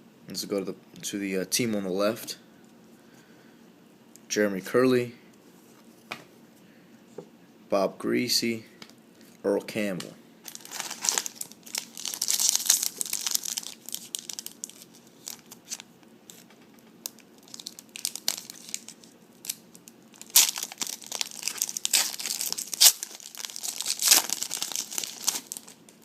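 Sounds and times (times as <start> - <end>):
wrapper crinkling and tearing: 10.4 - 26.0.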